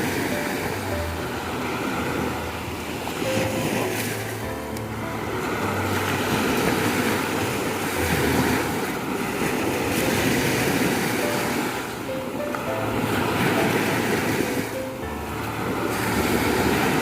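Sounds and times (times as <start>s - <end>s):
ocean waves breaking on beach: 0.0s - 17.0s.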